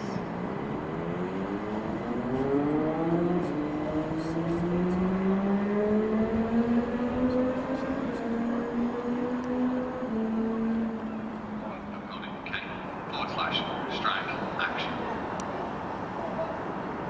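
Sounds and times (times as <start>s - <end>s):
train drive whine rising: 0.0s - 17.0s.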